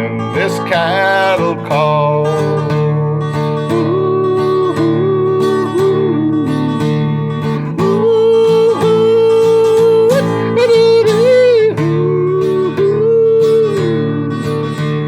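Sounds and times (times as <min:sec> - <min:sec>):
strummed acoustic guitar: 0:00.0 - 0:15.0
person yodeling: 0:03.7 - 0:15.0.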